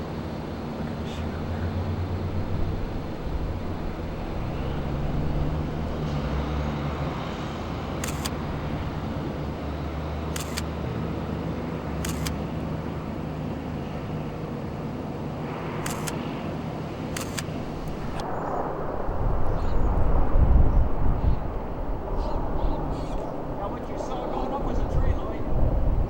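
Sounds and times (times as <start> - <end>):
vehicle engine droning: 0.0 - 18.3
short sharp clicks: 8.0 - 8.5, 10.4 - 10.7, 12.0 - 12.5, 15.8 - 16.2, 17.2 - 18.3.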